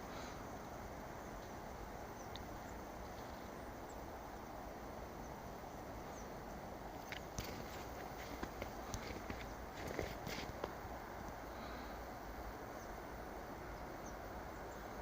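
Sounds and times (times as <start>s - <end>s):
outdoor background hiss: 0.0s - 15.0s
small birds chirping: 1.1s - 10.8s, 13.6s - 15.0s.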